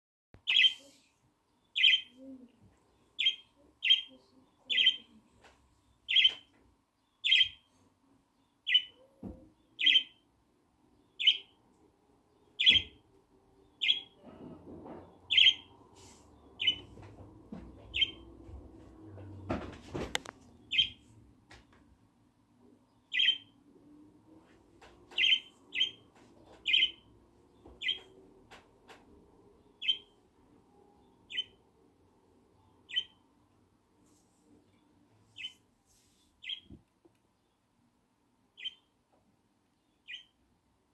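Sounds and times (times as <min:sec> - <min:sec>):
bird chirping: 0:00.4 - 0:05.2, 0:05.8 - 0:14.2, 0:15.2 - 0:18.3, 0:20.1 - 0:21.1, 0:22.6 - 0:24.1, 0:25.0 - 0:28.2, 0:29.5 - 0:31.8, 0:32.5 - 0:33.3, 0:34.6 - 0:37.8, 0:38.5 - 0:40.5.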